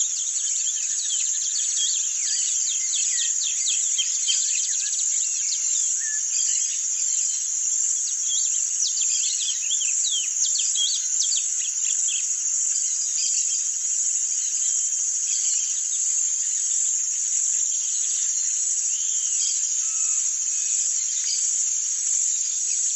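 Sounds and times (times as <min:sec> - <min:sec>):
high-pitched insect drone: 0:15.3 - 0:22.9.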